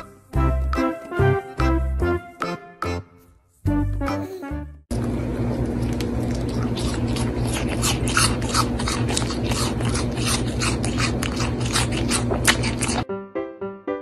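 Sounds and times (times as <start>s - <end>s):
piano music: 0.0s - 4.9s, 13.0s - 14.0s
goat crunching a snack: 5.5s - 13.0s.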